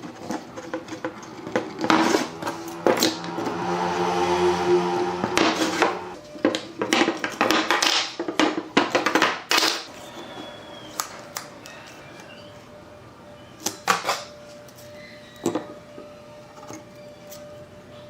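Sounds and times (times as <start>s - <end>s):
humming drone: 1.0s - 6.6s.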